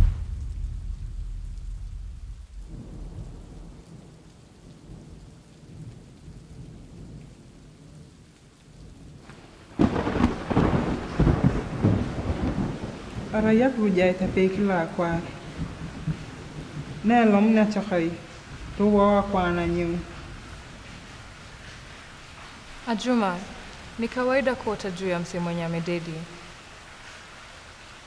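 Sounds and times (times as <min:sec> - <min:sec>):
loud thunder crack: 0:00.0 - 0:03.8, 0:09.8 - 0:13.4
thunder rumbling: 0:00.0 - 0:08.1, 0:08.8 - 0:26.5
light rain: 0:00.0 - 0:28.0.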